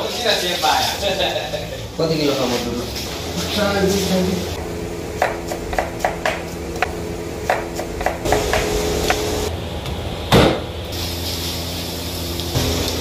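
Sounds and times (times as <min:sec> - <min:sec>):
knife chopping meat on wooden board: 0:05.2 - 0:06.9, 0:07.5 - 0:08.7.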